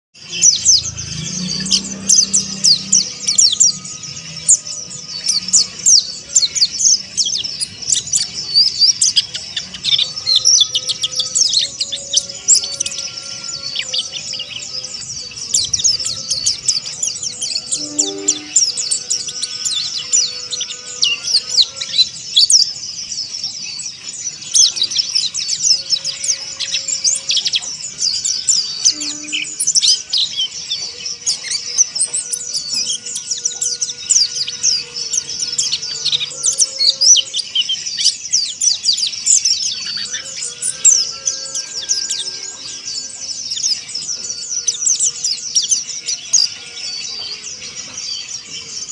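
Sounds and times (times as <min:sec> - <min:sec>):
birds twittering: 0:00.2 - 0:48.9
faint long steady tones: 0:16.5 - 0:21.2.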